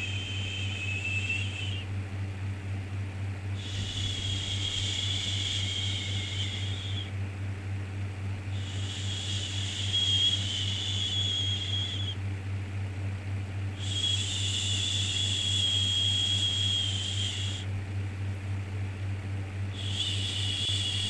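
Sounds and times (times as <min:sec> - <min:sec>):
low hum: 0:00.0 - 0:02.3.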